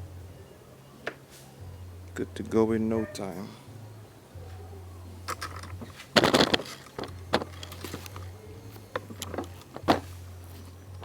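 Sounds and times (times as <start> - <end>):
steady low hum: 0.0 - 11.0
plastic parts clattering: 5.2 - 11.0
plastic clicks and knocks: 5.3 - 10.2.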